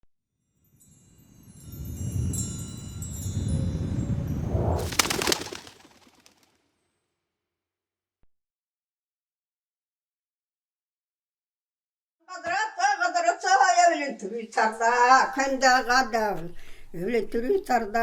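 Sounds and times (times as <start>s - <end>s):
high tinkling chime tones: 0.6s - 4.8s.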